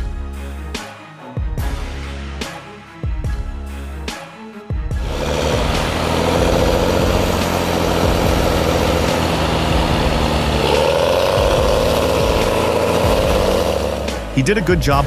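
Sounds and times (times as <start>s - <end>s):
heavy machine engine running: 5.0s - 15.0s.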